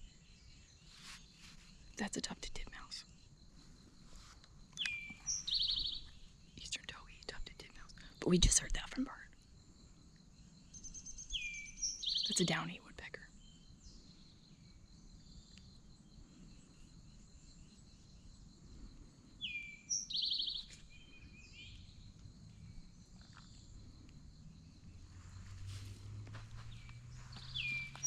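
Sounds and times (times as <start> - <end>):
high insect hum: 0.0 - 28.0
songbirds singing: 0.0 - 28.0
low hum: 21.8 - 28.0.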